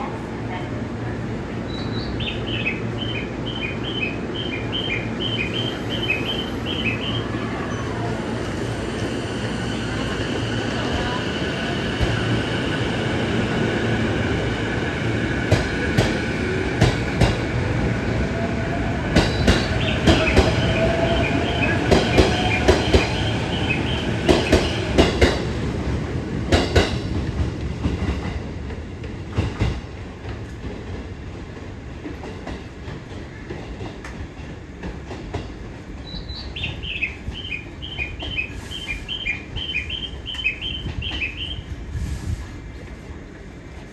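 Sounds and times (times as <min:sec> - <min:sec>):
train wheels clacking over rail joints: 0:15.4 - 0:17.6, 0:19.1 - 0:25.6, 0:26.4 - 0:28.4.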